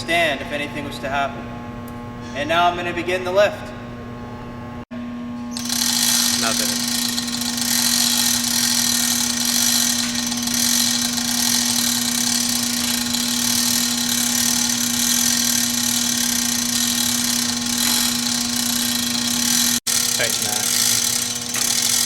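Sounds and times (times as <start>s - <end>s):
hoist motor humming: 5.5s - 22.0s.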